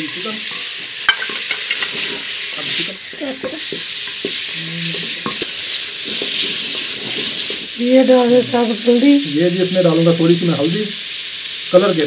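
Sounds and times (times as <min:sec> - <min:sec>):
chicken sizzling in a pot: 0:00.0 - 0:12.0
wooden spoon scraping a pot: 0:00.5 - 0:07.7.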